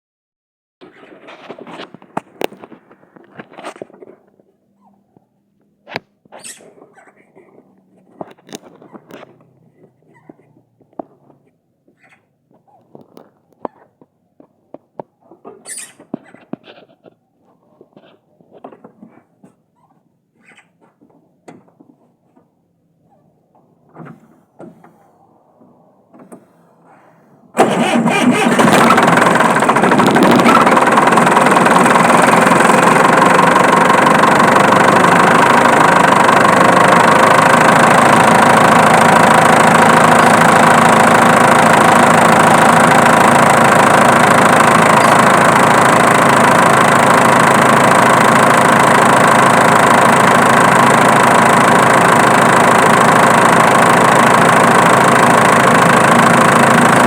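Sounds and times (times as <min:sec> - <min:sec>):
diesel engine starting and idling: 0:26.1 - 0:57.0.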